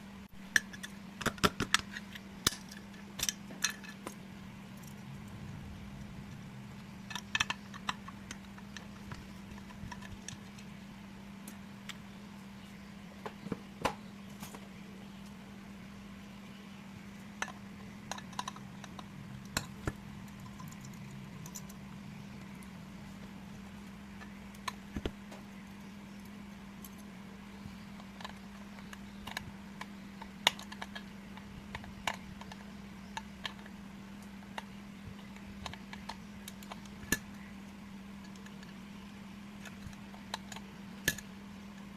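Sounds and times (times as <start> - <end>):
low hum: 0.0 - 41.9.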